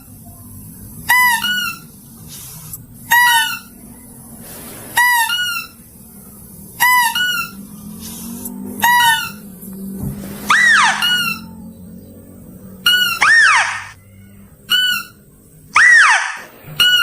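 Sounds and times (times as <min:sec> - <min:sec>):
faint low hum: 0:00.0 - 0:17.0
high two-note animal cry: 0:10.5 - 0:11.6, 0:12.8 - 0:17.0.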